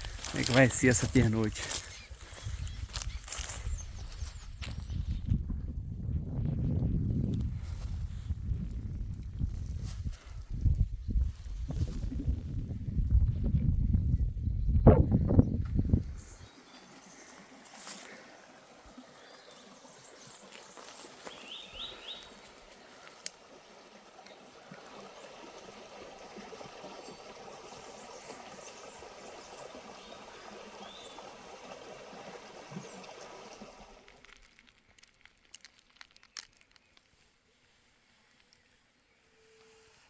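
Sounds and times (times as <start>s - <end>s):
stream water running: 0.0s - 5.3s, 15.0s - 36.8s.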